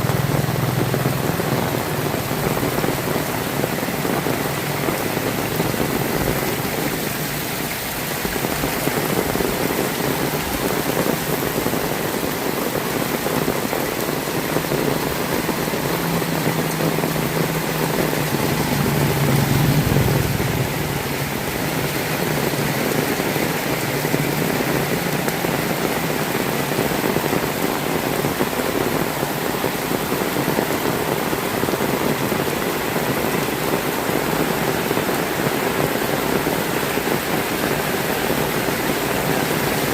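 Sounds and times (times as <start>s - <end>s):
heavy rain: 0.0s - 39.9s
vehicle passing: 15.0s - 25.3s.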